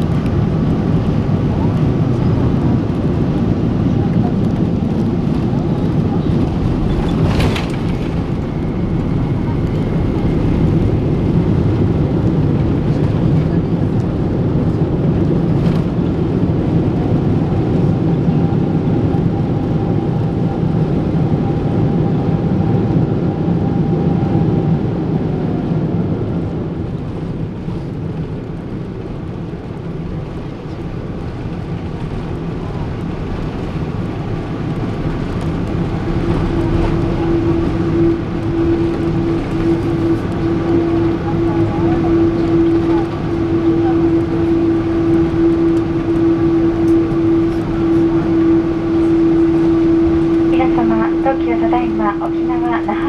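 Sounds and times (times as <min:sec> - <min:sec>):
engines and wheels rumbling: 0:00.0 - 0:53.0
whine: 0:00.0 - 0:53.0
steady hum: 0:32.7 - 0:53.0.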